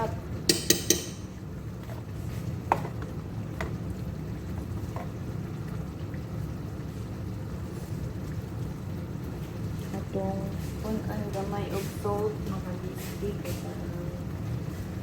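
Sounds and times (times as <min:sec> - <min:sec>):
metal spoon clinking on pot: 0:00.5 - 0:01.4.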